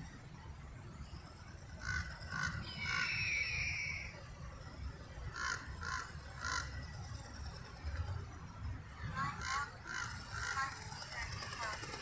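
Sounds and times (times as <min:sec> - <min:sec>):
birds calling harshly: 0:01.8 - 0:04.2, 0:05.3 - 0:07.0, 0:09.2 - 0:11.9.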